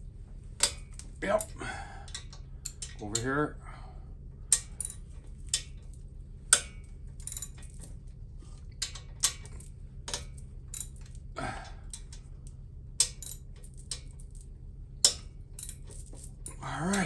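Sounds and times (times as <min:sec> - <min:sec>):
steady low hum: 0:00.0 - 0:17.0
hand tools clicking on metal: 0:13.0 - 0:14.1, 0:15.0 - 0:17.0.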